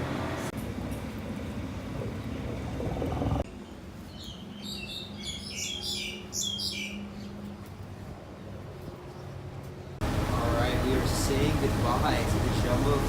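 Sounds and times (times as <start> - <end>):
small bird chirping: 3.7 - 7.4
loud dense rumble: 10.0 - 13.0.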